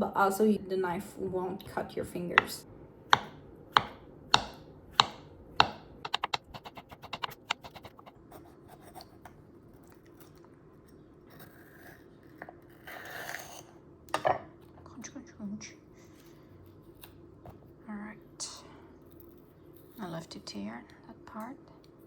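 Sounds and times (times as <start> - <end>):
knife chopping on cutting board: 2.4 - 8.0.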